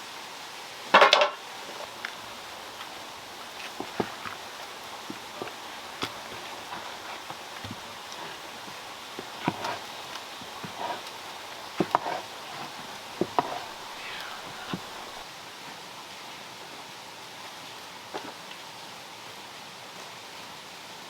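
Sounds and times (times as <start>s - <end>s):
steady hiss: 0.0s - 15.2s.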